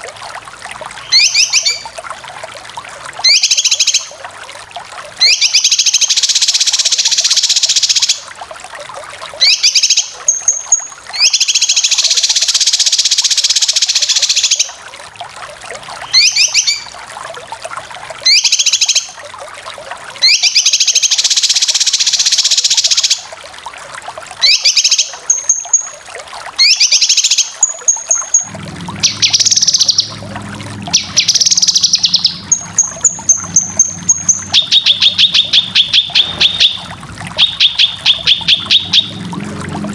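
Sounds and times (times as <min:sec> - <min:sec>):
low hum: 0:28.4 - 0:39.9
bird whistled notes: 0:30.9 - 0:36.8, 0:37.4 - 0:39.2
bird harsh rasping calls: 0:30.9 - 0:39.2.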